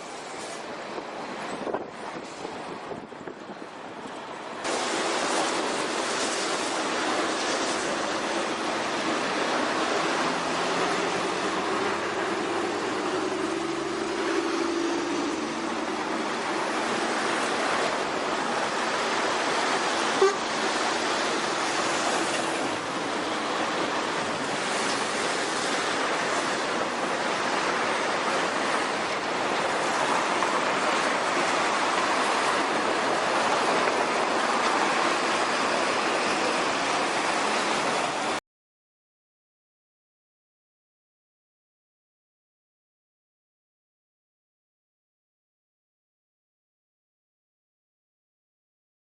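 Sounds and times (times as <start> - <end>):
vehicles rolling past: 0.0 - 38.4.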